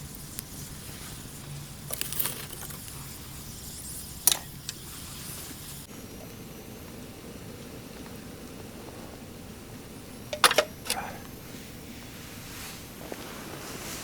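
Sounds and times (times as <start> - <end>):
low hum: 0.0 - 14.0
sharp clicks and clinks: 10.3 - 11.2.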